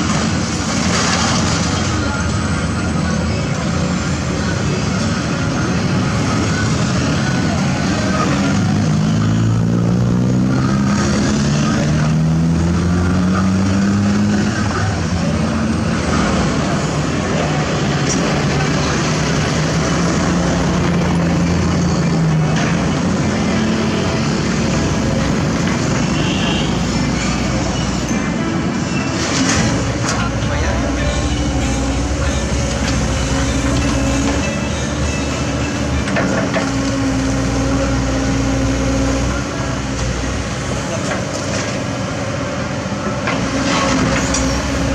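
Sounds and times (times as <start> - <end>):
excavator diesel engine under load: 0.0 - 44.9.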